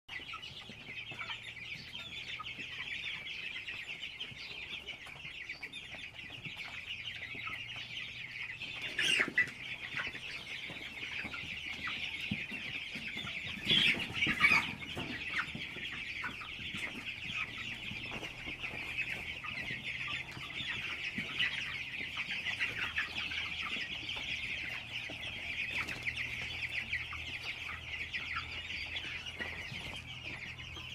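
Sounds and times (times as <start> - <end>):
birds chattering: 0.1 - 30.9.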